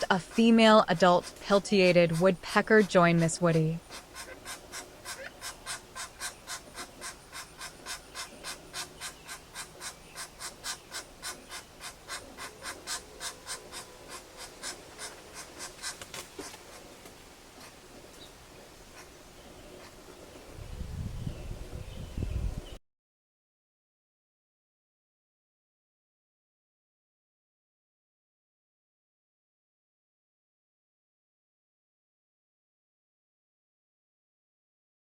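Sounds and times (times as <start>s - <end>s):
woodpecker tapping: 0.0s - 20.2s.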